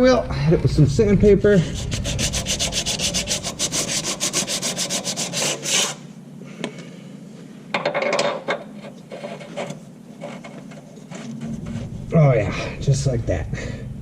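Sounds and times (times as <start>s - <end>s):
sandpaper rubbing on metal: 1.6s - 6.0s.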